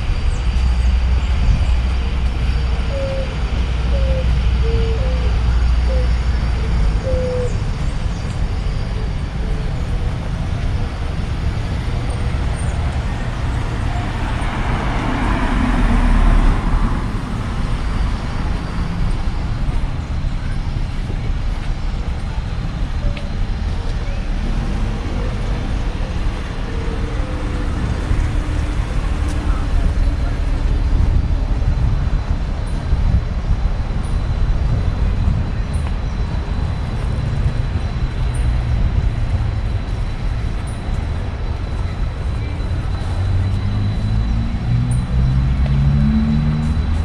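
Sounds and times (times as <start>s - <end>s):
passing cars: 0.0s - 47.0s
vehicle passing close: 43.2s - 47.0s.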